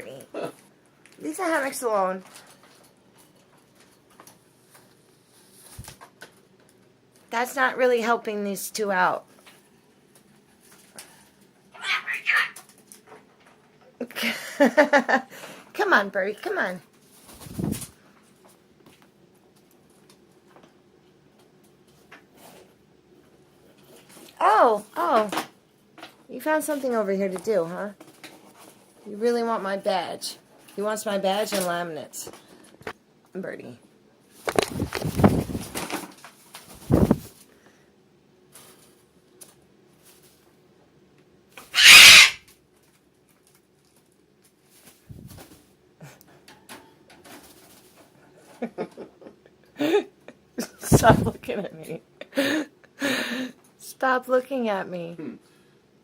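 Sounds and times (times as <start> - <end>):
faint steady hum: 0.0 - 56.0
bird harsh squawk: 11.7 - 12.6, 41.7 - 42.4.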